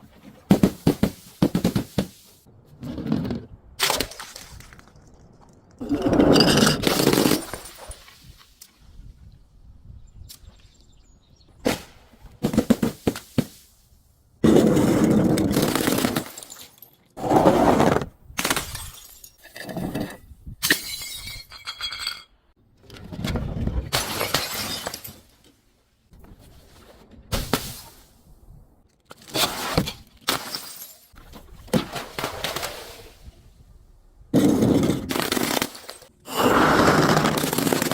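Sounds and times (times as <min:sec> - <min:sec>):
glass bottles shattering: 0:05.8 - 0:08.3, 0:15.5 - 0:17.1, 0:18.4 - 0:22.4, 0:23.9 - 0:25.3, 0:30.3 - 0:31.2.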